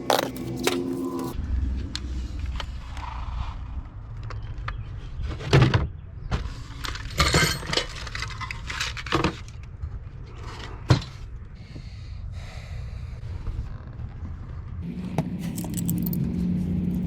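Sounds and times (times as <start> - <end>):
low hum: 0.0 - 4.8
metal sockets clinking: 15.4 - 16.3.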